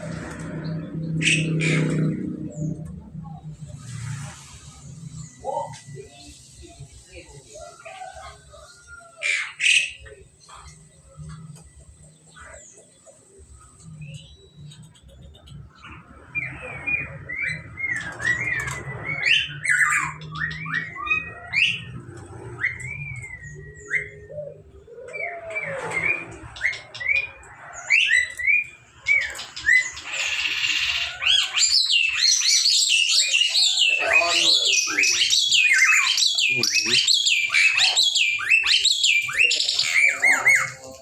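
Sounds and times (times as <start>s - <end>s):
harsh chattering squawks: 0.7s - 2.7s, 26.4s - 41.0s
bird singing whistled notes: 22.6s - 24.6s.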